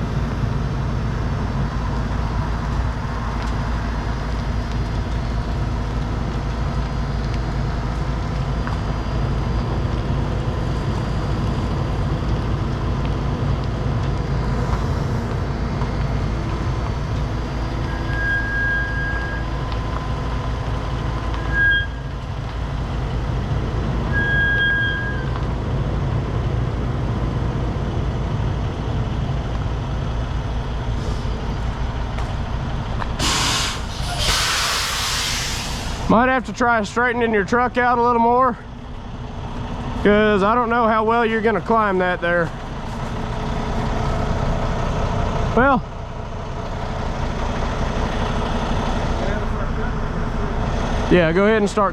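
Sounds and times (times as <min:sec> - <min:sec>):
heavy diesel truck engines: 0:00.0 - 0:51.9
air-brake hiss: 0:31.0 - 0:31.6, 0:33.2 - 0:36.2.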